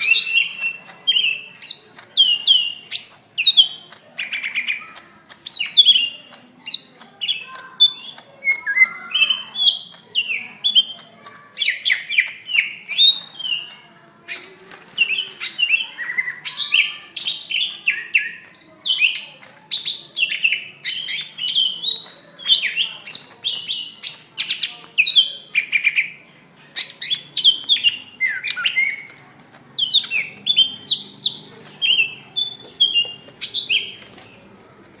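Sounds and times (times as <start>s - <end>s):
bird chirping and whistling: 0.0s - 4.8s, 11.6s - 26.2s, 26.8s - 29.1s, 29.8s - 34.1s.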